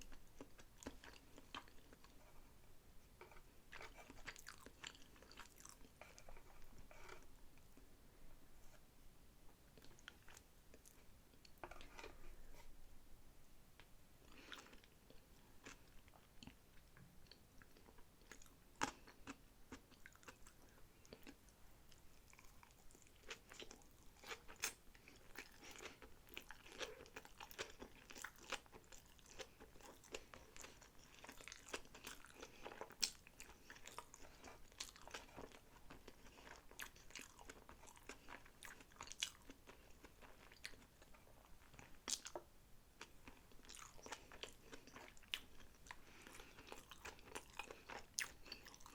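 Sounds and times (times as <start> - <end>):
chewing and biting food: 0.0 - 2.3, 3.2 - 7.2, 14.3 - 48.9.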